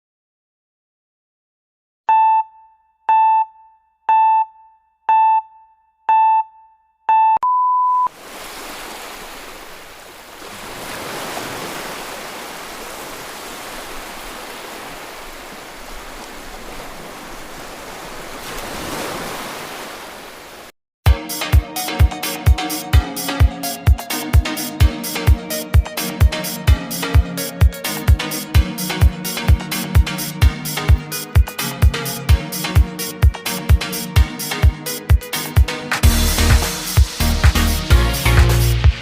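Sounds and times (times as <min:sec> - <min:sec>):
countdown beeps: 0:02.1 - 0:08.1
ocean waves washing: 0:08.1 - 0:20.7
music with a beat: 0:21.1 - 0:39.0.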